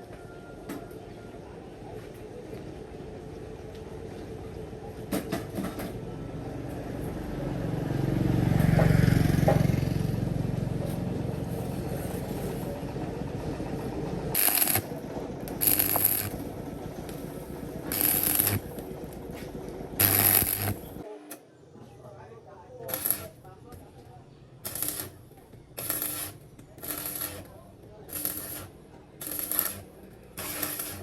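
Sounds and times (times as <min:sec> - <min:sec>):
vehicle engine passing: 0:06.3 - 0:21.0.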